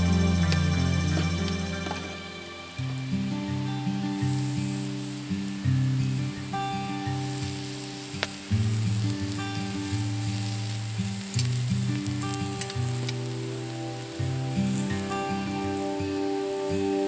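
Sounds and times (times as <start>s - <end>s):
background music with low notes: 0.0s - 5.6s, 11.2s - 17.0s
meat sizzling on a grill: 0.0s - 17.0s.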